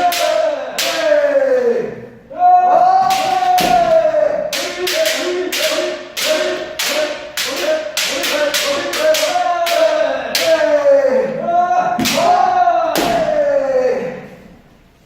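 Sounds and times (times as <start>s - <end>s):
person shouting sustained: 0.0s - 14.3s
bamboo sword strikes: 3.0s - 10.5s.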